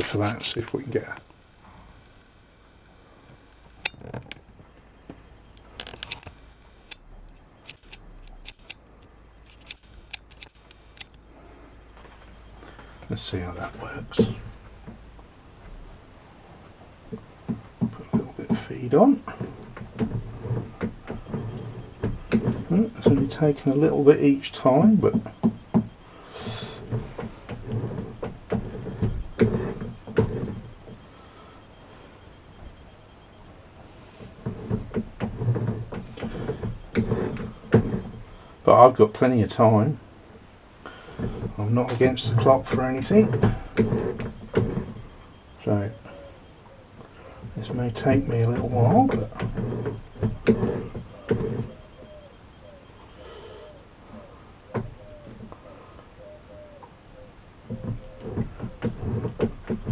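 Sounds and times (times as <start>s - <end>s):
metal lathe knocking and scraping: 16.8s - 39.8s, 40.9s - 52.2s, 57.7s - 59.9s.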